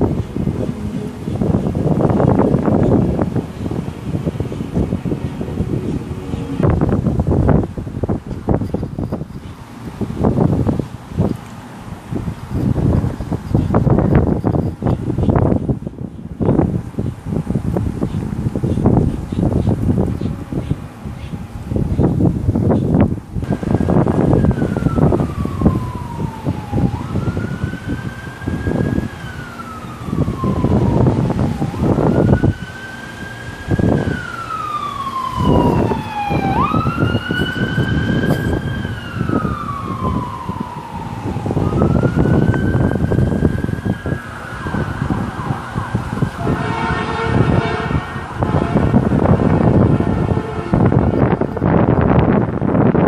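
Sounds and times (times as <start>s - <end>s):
emergency siren wailing: 0.0s - 8.7s, 11.9s - 20.5s, 23.4s - 53.0s
wind buffeting microphone: 0.0s - 53.0s
horn blast: 46.4s - 51.5s.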